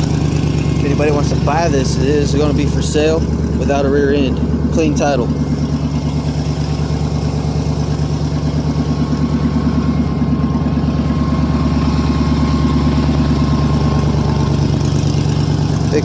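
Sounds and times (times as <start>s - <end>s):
pickup truck engine idling: 0.0s - 16.0s.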